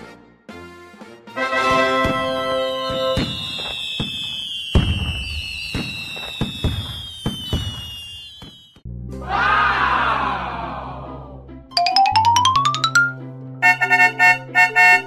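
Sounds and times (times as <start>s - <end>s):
fireworks bangs and crackles: 1.6s - 8.8s
fireworks whistles: 2.0s - 8.8s
chiming music: 11.7s - 13.4s.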